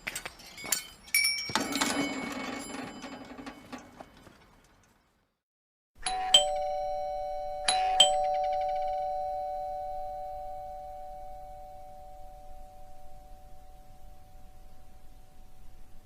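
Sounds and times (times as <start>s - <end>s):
two-tone doorbell chime: 6.0s - 15.5s.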